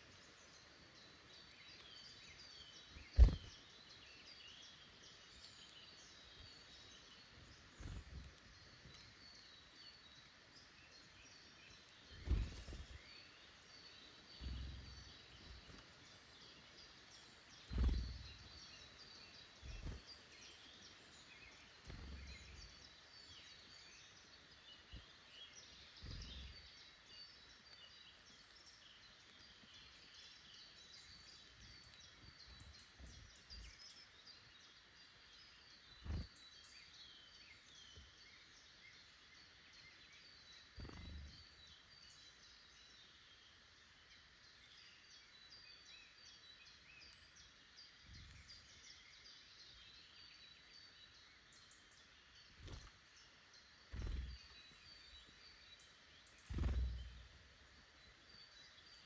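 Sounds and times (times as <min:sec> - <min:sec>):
woodland birds chirping: 0:00.0 - 0:59.0
low thumps: 0:56.5 - 0:57.4.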